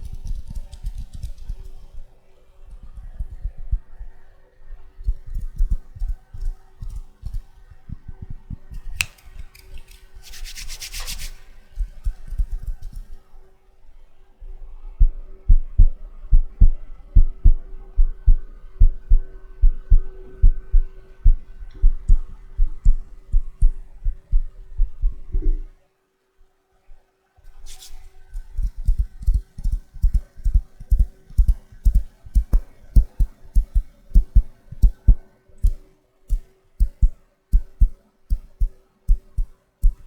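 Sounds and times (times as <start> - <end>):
hands rubbing and patting: 0.0 - 1.9, 8.9 - 13.2, 27.5 - 40.0
rustling swish: 9.2 - 13.2, 27.5 - 28.2
dull low thumps: 15.0 - 25.8, 30.9 - 40.0.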